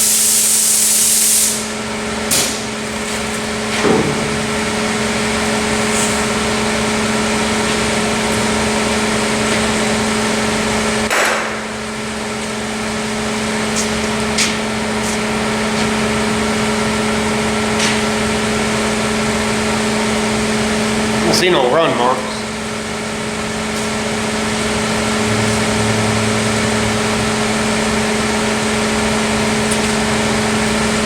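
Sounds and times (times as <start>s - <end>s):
paint spray gun hissing: 0.0s - 1.7s
machine hum: 1.5s - 31.0s.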